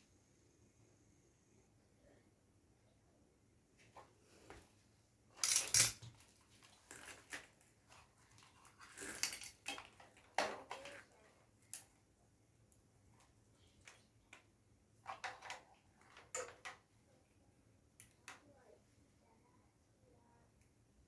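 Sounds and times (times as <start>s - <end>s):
metal parts and tools clinking: 5.4s - 6.1s, 8.8s - 9.9s.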